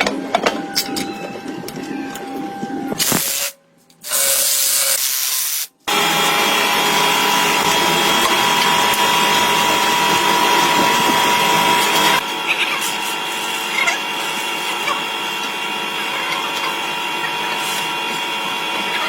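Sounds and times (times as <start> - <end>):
power tool whining: 5.9 - 19.0.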